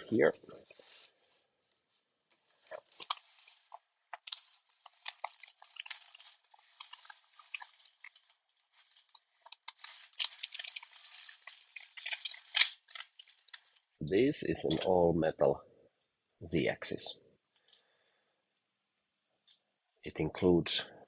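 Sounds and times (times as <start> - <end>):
packaging crinkling and rustling: 2.3 - 14.0.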